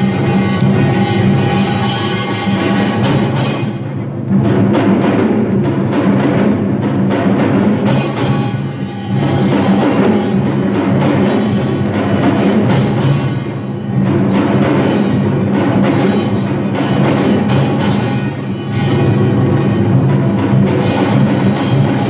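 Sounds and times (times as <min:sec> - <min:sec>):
percussion ensemble with gongs and drums: 0:00.0 - 0:22.0.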